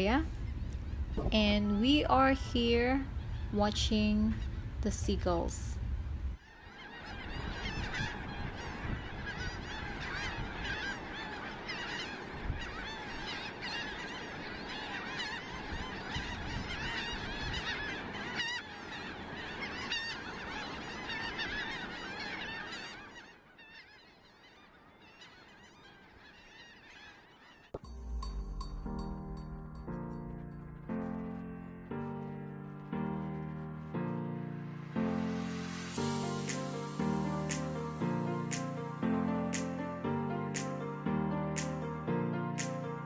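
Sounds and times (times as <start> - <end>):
wind buffeting microphone: 0.2 - 4.8, 7.0 - 18.4
seagulls squawking: 6.4 - 27.8.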